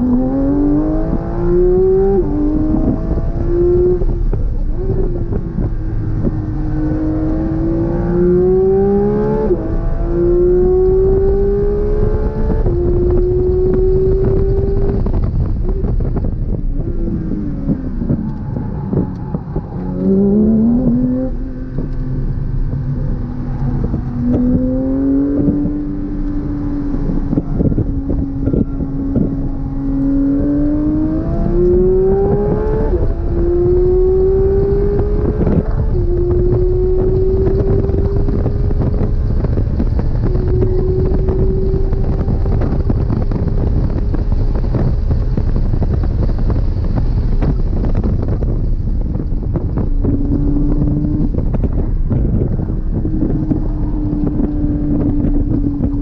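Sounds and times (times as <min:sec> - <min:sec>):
sports car engine revving: 0:00.0 - 0:56.0
wind and road noise: 0:00.0 - 0:56.0.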